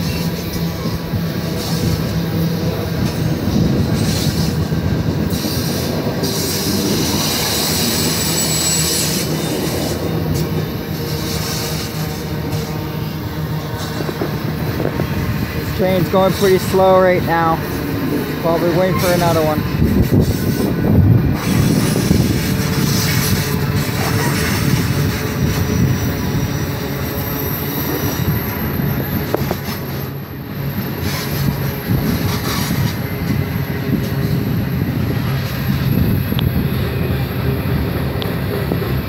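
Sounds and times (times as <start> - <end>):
freight train rumbling past: 0.0 - 39.0
faint high wheel squeal: 6.4 - 14.0, 18.6 - 19.6.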